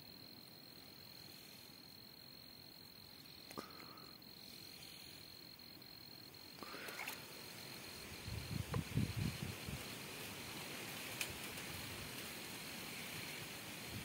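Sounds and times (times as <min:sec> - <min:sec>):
high-pitched insect trill: 0:00.0 - 0:14.0.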